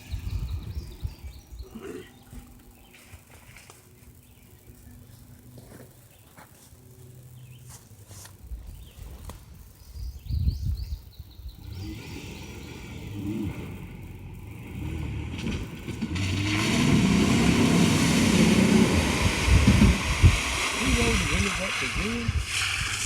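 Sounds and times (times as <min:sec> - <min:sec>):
truck engine revving: 0:11.5 - 0:23.0
tyres spinning in mud: 0:14.5 - 0:23.0.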